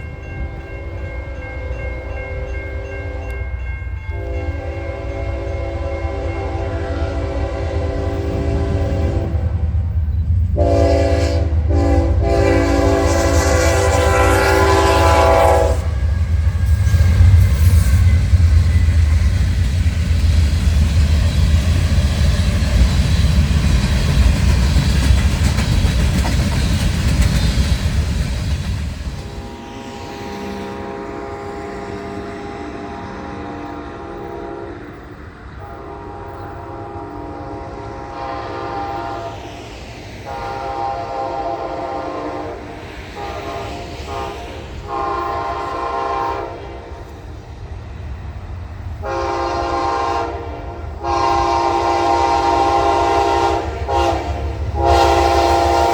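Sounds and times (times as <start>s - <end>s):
train wheels rumbling on rails: 0.0s - 55.9s
train horn: 0.4s - 9.7s, 10.5s - 18.5s, 29.1s - 39.5s, 40.2s - 47.3s, 49.0s - 55.9s.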